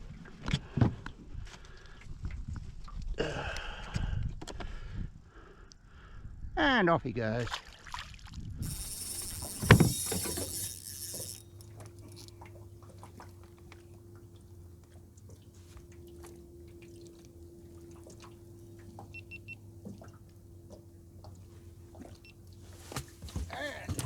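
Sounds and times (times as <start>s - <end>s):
fishing tackle tapping: 8.6s - 12.6s
steady low hum: 8.6s - 23.3s
short high beeps: 19.1s - 19.6s.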